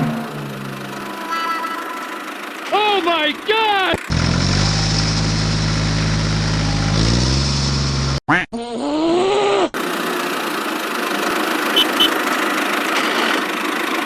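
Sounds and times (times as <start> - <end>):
short high beeps: 11.8 - 12.2.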